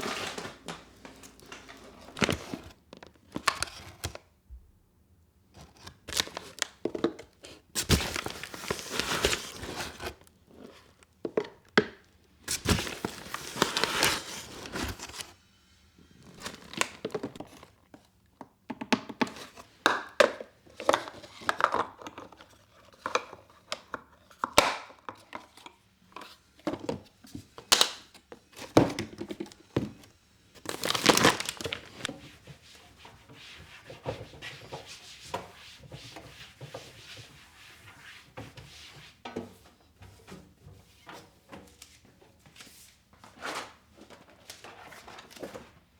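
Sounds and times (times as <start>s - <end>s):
packaging crinkling and tearing: 5.6s - 6.8s, 7.8s - 10.2s, 12.5s - 15.3s, 30.6s - 32.1s.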